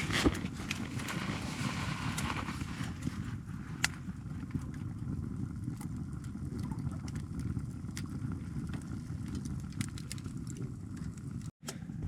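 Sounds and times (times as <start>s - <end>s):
burning wood crackling and popping: 0.0s - 11.5s
low stove rumble: 0.0s - 12.0s.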